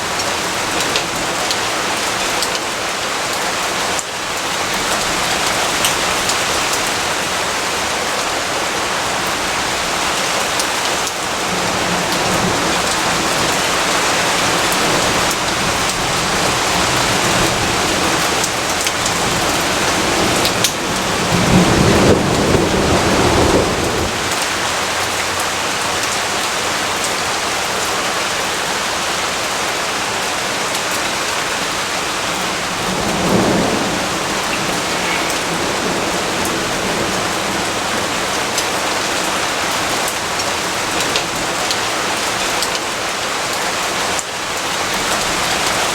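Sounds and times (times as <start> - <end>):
heavy rainfall: 0.0 - 45.9
low thunder rumble: 11.4 - 24.7, 32.3 - 38.5.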